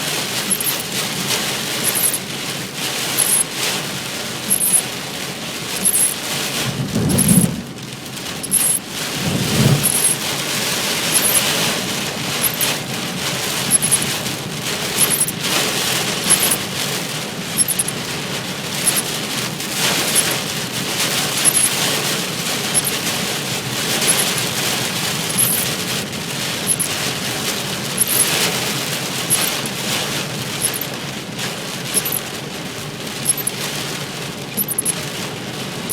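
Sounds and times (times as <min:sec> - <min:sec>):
heavy rain on a car: 0:00.0 - 0:35.9
low rumbles: 0:06.6 - 0:10.3.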